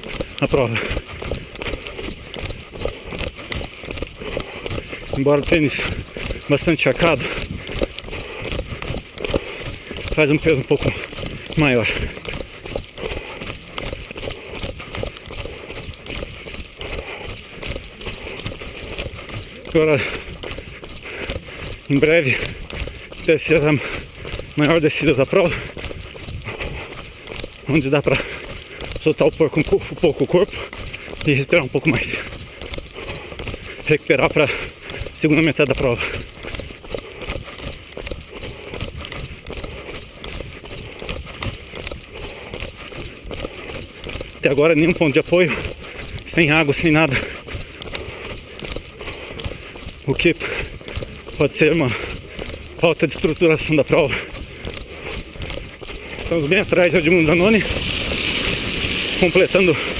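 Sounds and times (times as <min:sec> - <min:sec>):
footsteps running on wet pavement: 0:00.0 - 0:59.9
rushing noise from moving camera: 0:57.0 - 0:59.9.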